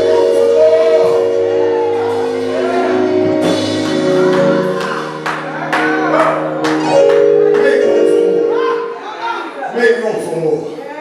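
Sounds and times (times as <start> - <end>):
sharp percussion hits: 0.0 - 8.2
sustained keyboard chords: 0.0 - 10.4.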